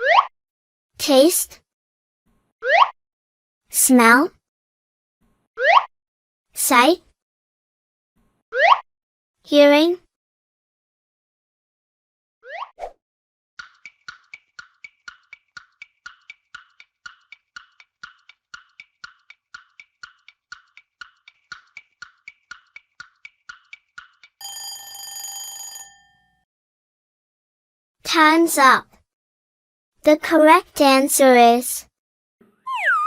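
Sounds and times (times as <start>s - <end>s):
clock-like ticking: 13.6s - 24.7s
bell ring: 24.4s - 26.3s.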